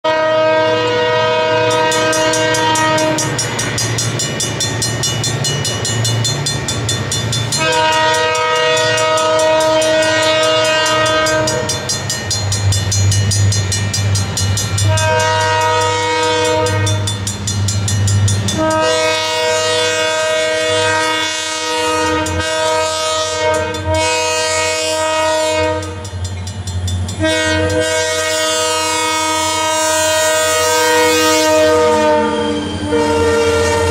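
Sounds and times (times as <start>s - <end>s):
train air horn blasts: 0.0s - 3.5s, 7.5s - 11.9s, 14.8s - 17.1s, 18.5s - 26.1s, 27.1s - 33.9s
locomotive engines rumbling: 0.1s - 33.9s.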